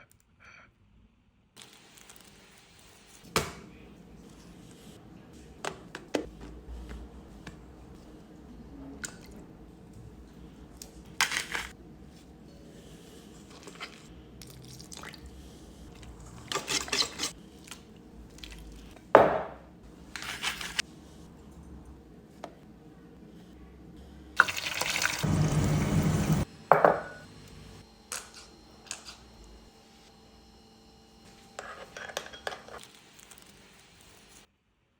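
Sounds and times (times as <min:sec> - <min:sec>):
bowls and utensils clinking: 0:31.6 - 0:33.4.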